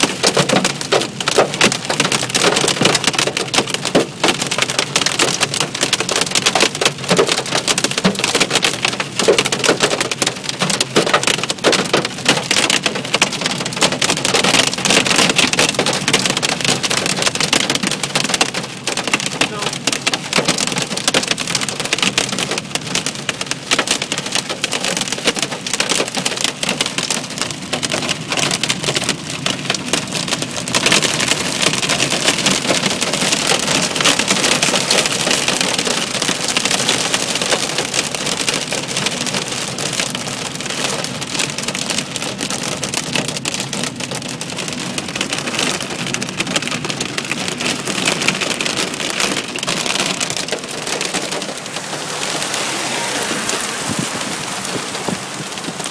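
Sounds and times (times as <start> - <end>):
hail and heavy rain: 0.0 - 55.9.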